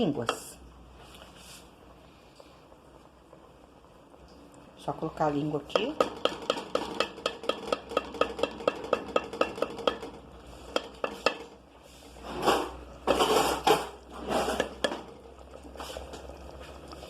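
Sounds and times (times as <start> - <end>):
utensil clinking against pot: 5.7 - 11.6, 12.5 - 15.2
scraping in a pot: 6.0 - 17.0.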